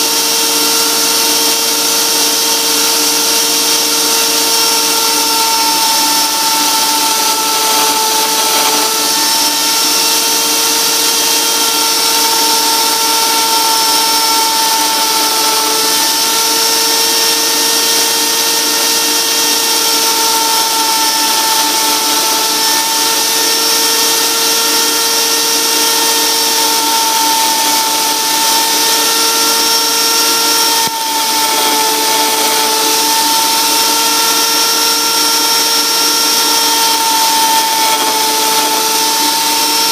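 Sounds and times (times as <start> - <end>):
die grinder high whine: 0.0 - 39.9.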